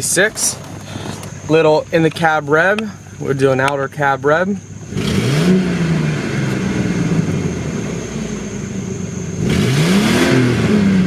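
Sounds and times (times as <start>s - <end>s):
engine revving: 4.8s - 11.0s.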